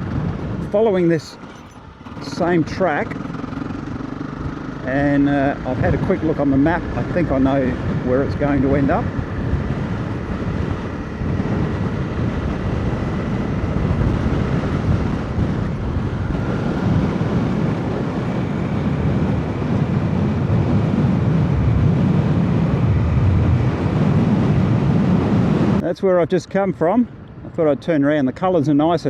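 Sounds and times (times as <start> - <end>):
tyres rumbling on dirt: 0.0 - 20.1
motorcycle engine running: 0.0 - 25.8.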